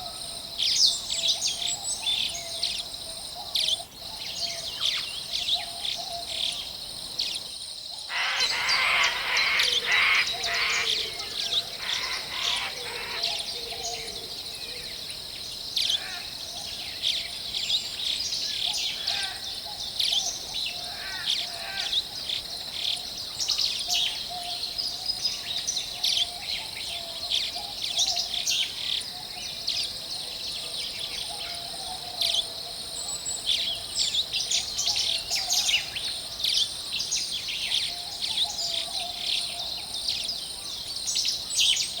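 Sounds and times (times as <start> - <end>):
birds chirping and singing: 8.1 - 14.8.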